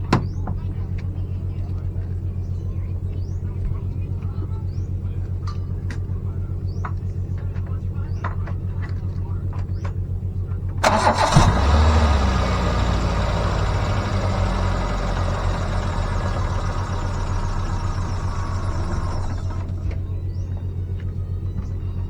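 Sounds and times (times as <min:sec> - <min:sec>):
car engine starting and idling: 0:10.7 - 0:20.5.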